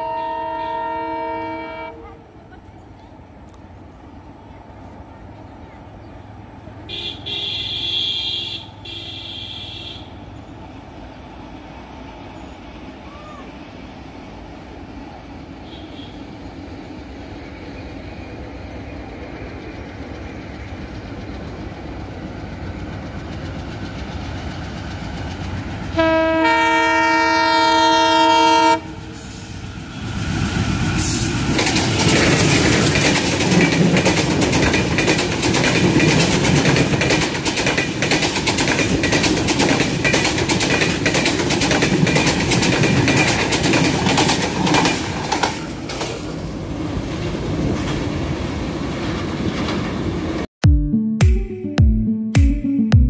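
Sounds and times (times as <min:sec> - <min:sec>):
locomotive horn: 0:00.0 - 0:02.4, 0:06.9 - 0:10.2, 0:15.6 - 0:16.3, 0:26.0 - 0:29.4
train approaching rumble: 0:00.0 - 0:50.5
coaches clattering over rail joints: 0:31.4 - 0:46.5.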